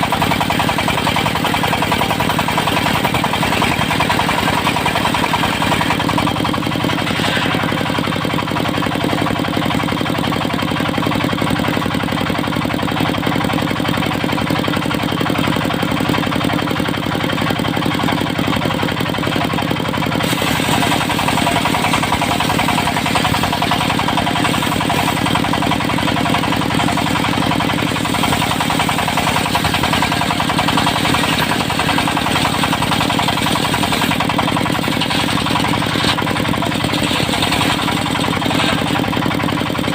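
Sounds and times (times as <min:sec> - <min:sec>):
sawmill engine running: 0:00.0 - 0:39.9
high harsh saw noise: 0:06.9 - 0:08.0.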